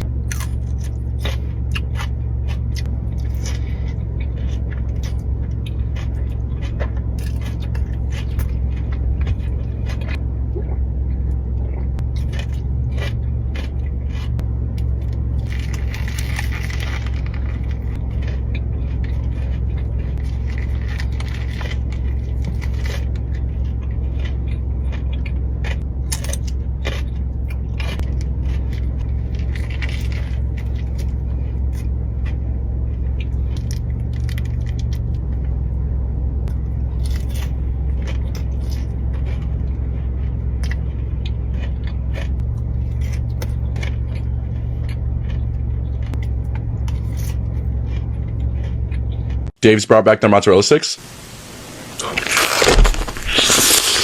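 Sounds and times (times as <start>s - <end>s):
low rumble: 0.0s - 49.6s
chewing: 0.2s - 35.6s, 36.5s - 49.5s, 51.9s - 54.0s
paper wrapper crackling: 15.4s - 17.9s, 51.3s - 54.0s.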